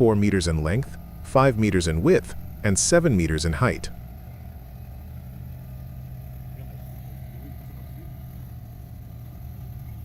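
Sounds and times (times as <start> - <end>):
truck diesel engine running: 0.0 - 10.0.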